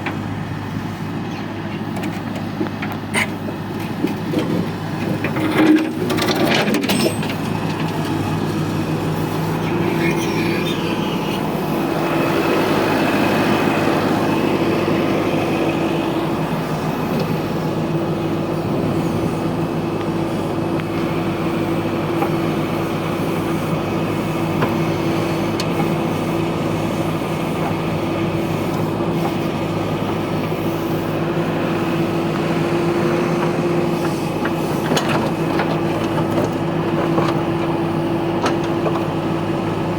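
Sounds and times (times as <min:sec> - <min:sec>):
diesel engine droning: 0:00.0 - 0:39.9
metal clanks: 0:01.9 - 0:08.2.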